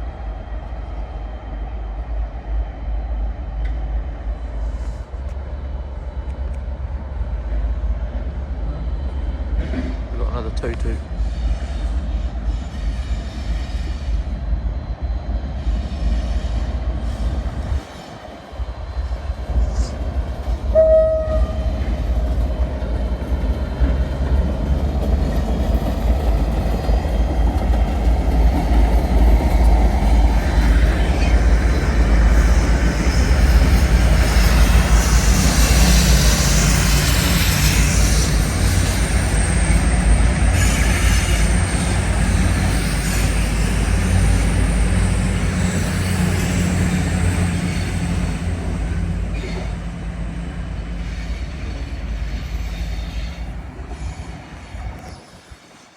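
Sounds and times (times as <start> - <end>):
train rumbling: 0.0 - 55.9
train horn: 20.7 - 21.9.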